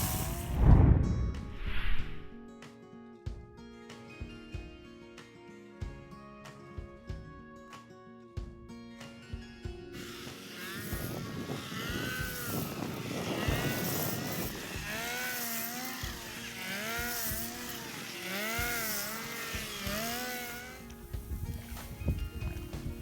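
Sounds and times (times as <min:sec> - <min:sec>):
small engine running: 0:00.0 - 0:00.9, 0:10.0 - 0:23.0.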